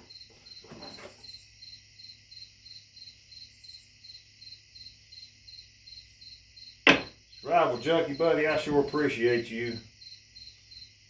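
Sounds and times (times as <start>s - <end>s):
cricket chirping: 0.0s - 11.0s
handling noise: 6.9s - 7.1s.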